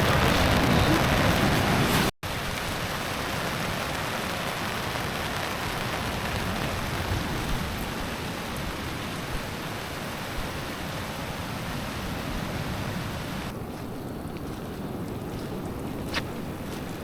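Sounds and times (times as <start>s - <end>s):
heavy rain hissing: 0.0s - 13.5s.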